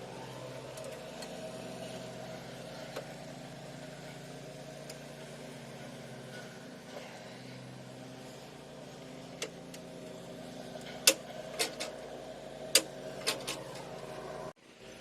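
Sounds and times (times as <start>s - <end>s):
tools and parts clicking: 11.0s - 12.0s.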